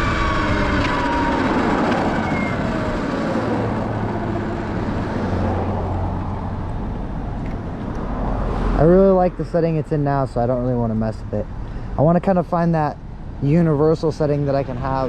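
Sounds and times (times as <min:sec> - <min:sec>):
electric motor whine: 0:00.0 - 0:05.6
road and wind noise: 0:00.0 - 0:15.0.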